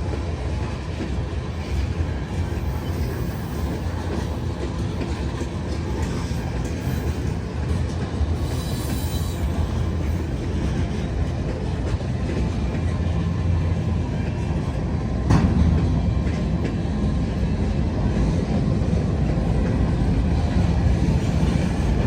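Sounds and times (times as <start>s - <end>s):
freight train wheels rumbling: 0.0s - 22.0s.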